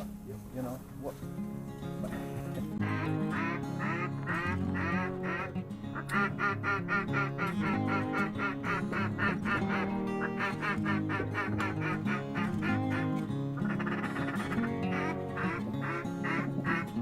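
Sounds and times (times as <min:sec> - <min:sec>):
background music with low notes: 0:00.0 - 0:17.0
duck quacking: 0:02.1 - 0:17.0.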